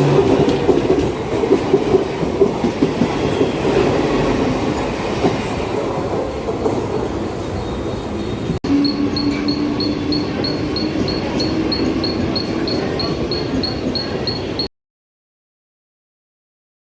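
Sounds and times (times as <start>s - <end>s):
train rumbling and rattling: 0.0s - 14.7s
rapid high beeping: 8.6s - 14.7s.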